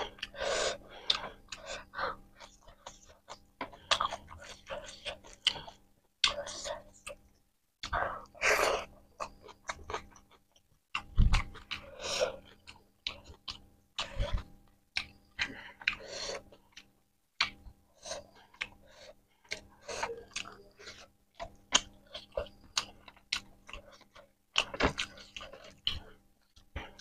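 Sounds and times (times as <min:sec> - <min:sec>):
wet chewing clicks and smacks: 0:09.1 - 0:26.7.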